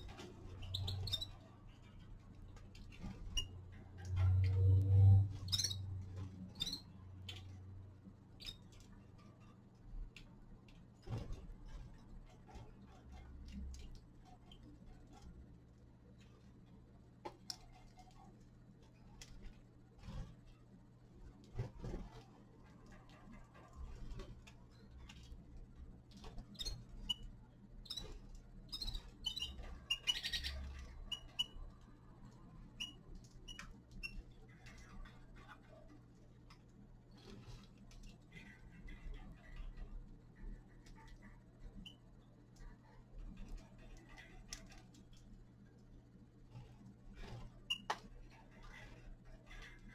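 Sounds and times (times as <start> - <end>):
finches chirping: 0.6 - 1.5, 5.4 - 5.9, 6.5 - 7.5, 26.5 - 31.6
wings fluttering: 21.2 - 31.6, 46.4 - 49.9.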